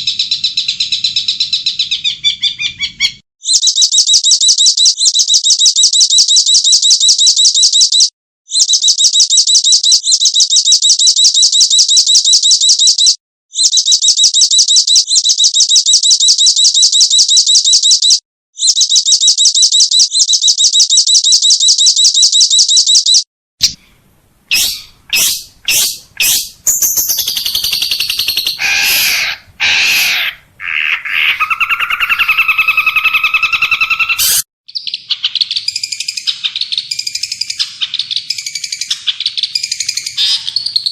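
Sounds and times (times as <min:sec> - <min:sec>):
bird warbling song: 0:00.0 - 0:18.9, 0:21.2 - 0:40.9
rapid high dry bird trill: 0:02.1 - 0:23.8, 0:24.5 - 0:40.9
bird clicking notes: 0:24.5 - 0:30.3.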